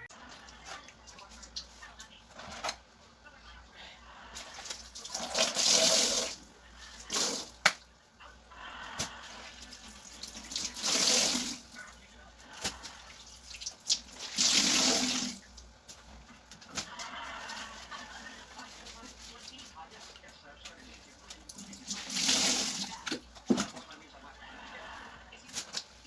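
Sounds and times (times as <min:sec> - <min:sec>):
tap water running into sink: 0:05.0 - 0:06.4, 0:10.2 - 0:11.6, 0:13.6 - 0:15.4, 0:21.5 - 0:23.7.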